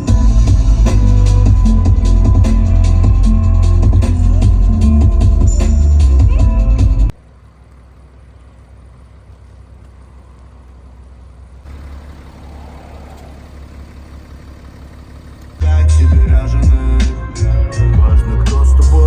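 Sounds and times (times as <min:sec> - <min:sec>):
music: 0:00.0 - 0:07.1, 0:15.6 - 0:19.0
diesel engine rumble: 0:00.0 - 0:19.0
road noise: 0:00.0 - 0:19.0.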